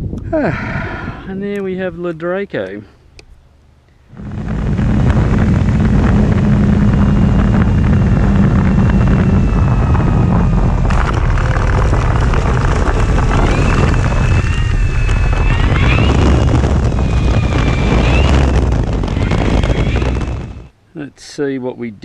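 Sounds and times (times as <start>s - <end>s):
wind rush on microphone: 0.0s - 2.0s, 4.1s - 20.7s
electric model plane motor whine: 4.1s - 20.7s.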